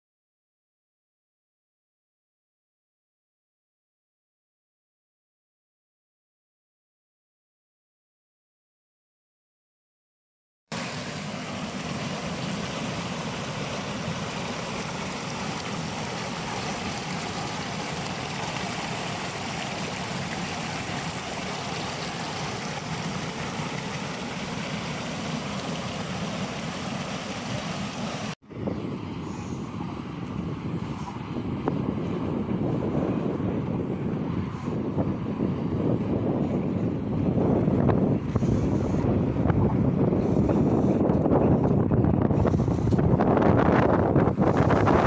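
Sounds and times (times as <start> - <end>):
flowing water rushing: 10.7 - 28.4.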